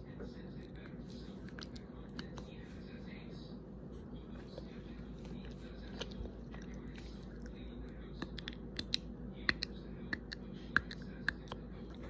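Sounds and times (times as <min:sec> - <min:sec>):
chocolate being bitten and chewed: 0:04.6 - 0:12.0.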